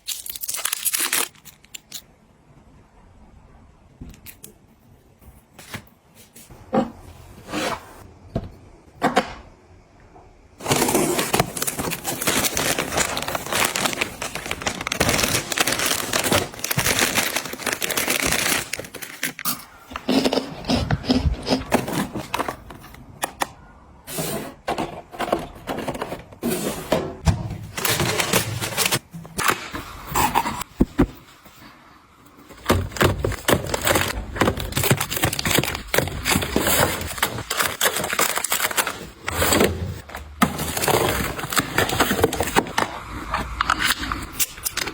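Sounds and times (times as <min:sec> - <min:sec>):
items clicking and clattering: 0:10.6 - 0:20.4, 0:24.6 - 0:31.2, 0:32.4 - 0:44.9.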